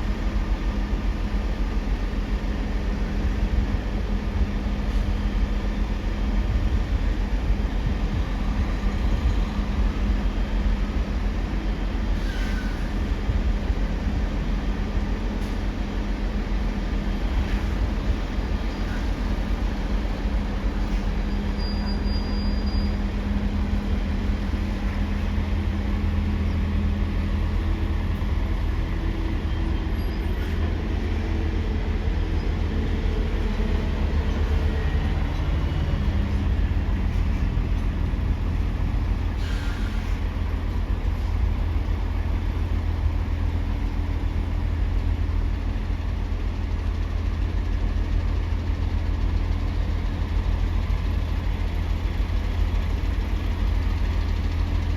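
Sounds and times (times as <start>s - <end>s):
diesel engines rumbling: 0.0s - 54.9s
brief hiss: 39.4s - 40.2s.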